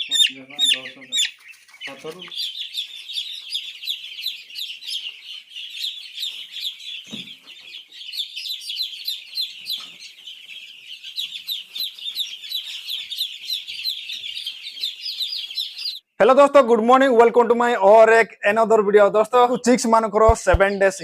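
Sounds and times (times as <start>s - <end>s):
chicks peeping: 0.0s - 16.2s, 19.0s - 21.0s
low knock: 20.3s - 20.7s.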